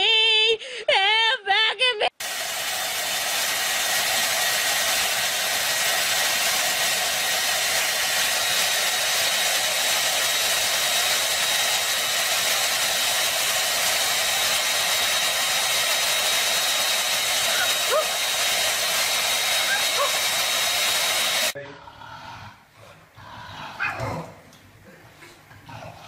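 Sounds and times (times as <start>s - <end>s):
hair dryer blowing: 2.1s - 21.6s.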